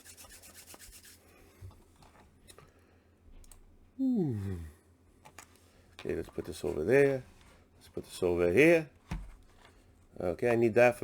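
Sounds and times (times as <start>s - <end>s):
wordless human voice falling: 4.0s - 4.7s.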